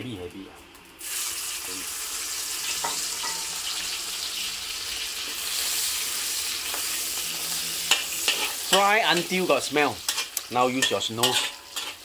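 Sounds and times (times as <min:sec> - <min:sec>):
shrimp sizzling in hot oil: 0:00.7 - 0:12.0
metal spatula scraping a wok: 0:02.6 - 0:12.0.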